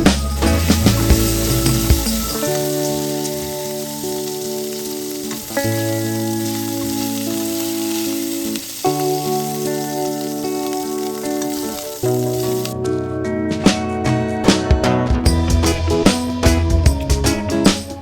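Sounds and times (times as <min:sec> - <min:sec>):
food sizzling in a pan: 0:00.0 - 0:12.8
background music of sustained chords: 0:00.0 - 0:15.0.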